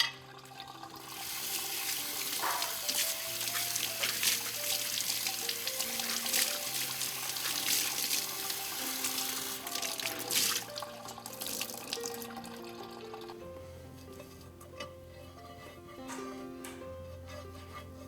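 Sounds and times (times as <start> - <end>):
light background music: 0.0 - 18.0
water running from tap into sink: 0.2 - 13.3.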